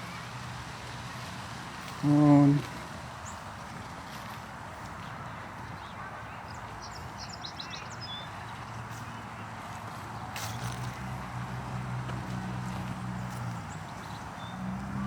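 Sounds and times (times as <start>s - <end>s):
steady outdoor hiss: 0.0s - 15.0s
small birds chirping: 4.2s - 11.0s, 12.6s - 15.0s.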